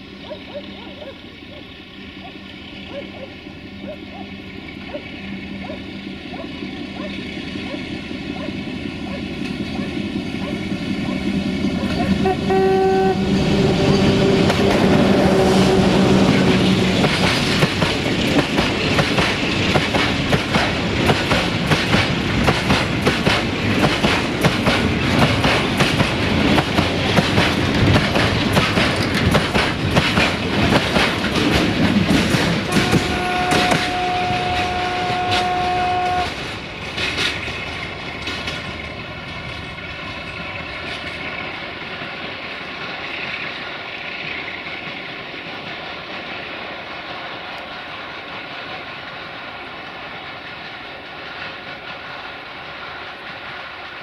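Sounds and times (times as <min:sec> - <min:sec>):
diesel locomotive horn: 0:09.8 - 0:17.1, 0:32.6 - 0:36.6
train wheels clattering over rail joints: 0:16.0 - 0:54.0.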